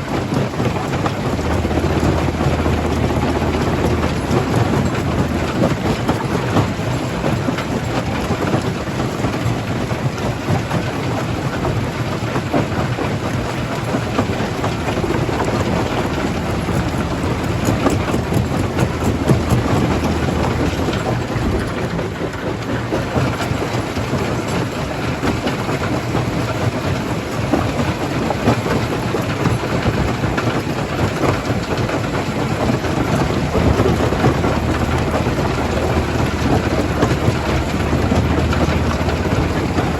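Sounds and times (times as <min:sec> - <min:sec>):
machine humming: 0:00.3 - 0:08.4, 0:13.6 - 0:24.1, 0:31.7 - 0:39.9.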